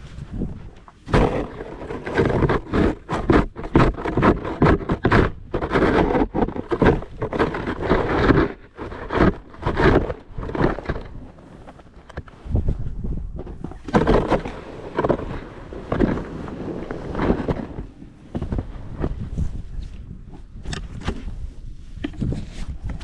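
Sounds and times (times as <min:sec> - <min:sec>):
snow shovel scraping: 0:01.0 - 0:12.6, 0:13.8 - 0:20.1.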